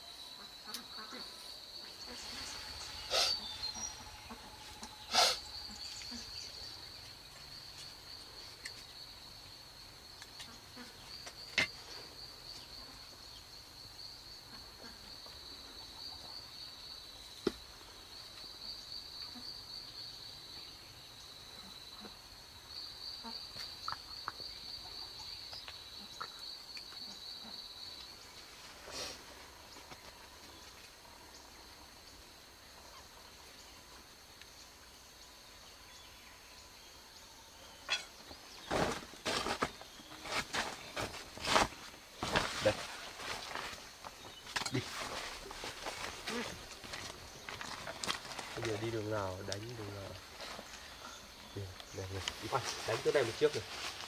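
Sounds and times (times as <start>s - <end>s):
insect trilling: 0.0s - 28.2s, 40.8s - 54.0s.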